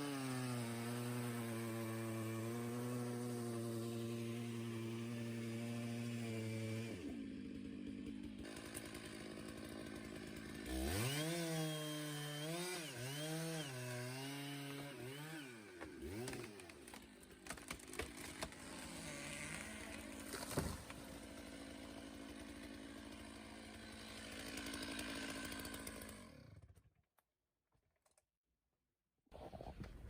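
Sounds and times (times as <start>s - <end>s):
chainsaw engine revving: 0.0s - 26.6s.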